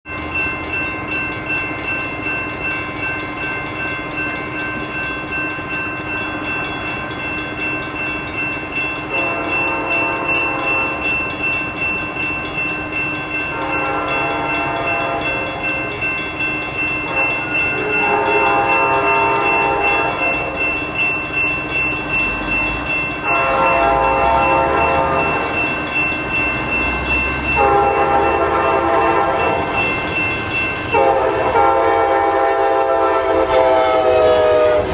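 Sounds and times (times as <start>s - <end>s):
diesel locomotive rumble: 0.1s - 34.9s
train air horn chord blasts: 9.1s - 11.0s, 13.5s - 15.6s, 17.1s - 20.5s, 23.2s - 25.4s, 27.6s - 29.7s, 30.9s - 34.9s.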